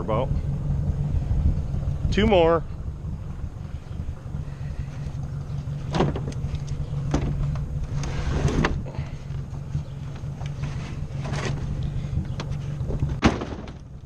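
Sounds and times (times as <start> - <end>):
tractor engine running: 0.0 - 14.0
sharp knocks and clatters: 5.9 - 7.7, 12.4 - 14.0.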